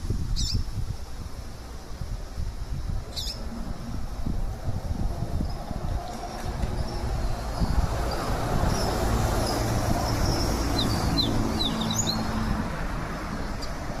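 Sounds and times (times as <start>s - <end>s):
small bird chirping: 0.3s - 0.7s, 3.1s - 3.5s
low rumble: 2.6s - 8.8s.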